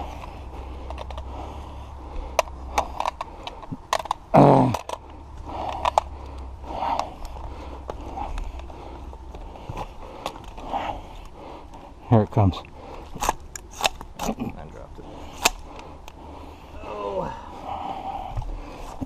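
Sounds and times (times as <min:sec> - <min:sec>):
low hum: 0:00.0 - 0:19.0
gun metallic clicks: 0:02.3 - 0:07.4, 0:15.3 - 0:16.2.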